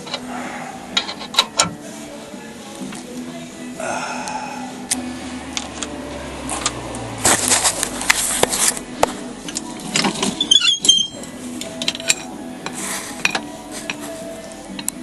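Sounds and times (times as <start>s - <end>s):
metal tools clinking and clattering: 1.0s - 1.8s, 9.9s - 12.3s.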